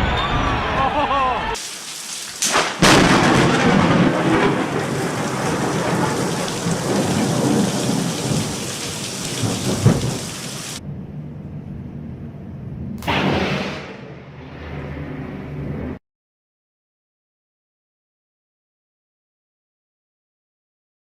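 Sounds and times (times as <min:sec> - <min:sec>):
heavy rain: 0:01.6 - 0:10.8
thunder crack: 0:02.4 - 0:10.8, 0:13.0 - 0:16.0
thunder rumbling: 0:02.4 - 0:10.8.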